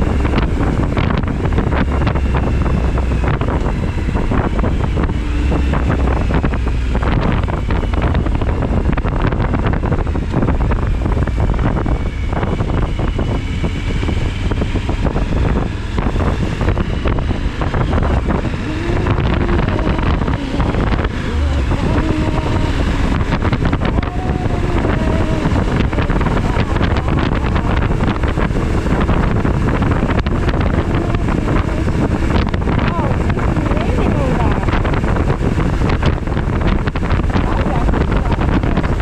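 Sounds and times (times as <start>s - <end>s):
motorcycle engine drone: 0.0s - 39.0s
wind buffeting microphone: 0.0s - 39.0s.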